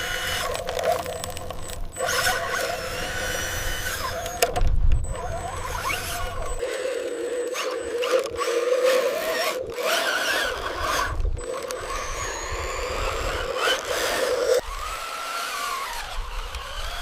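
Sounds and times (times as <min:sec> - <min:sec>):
small electric motor whining: 0:00.0 - 0:17.0.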